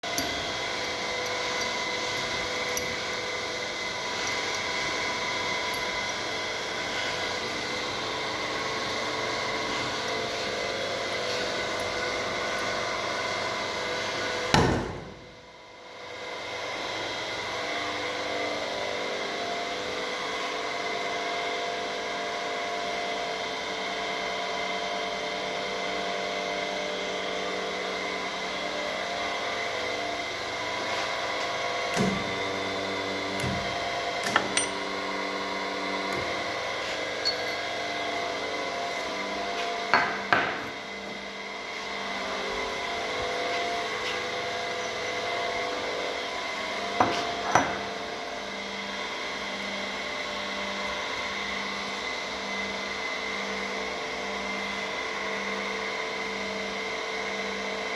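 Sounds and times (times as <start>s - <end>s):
testing machine humming: 0.0s - 14.4s, 31.9s - 45.8s.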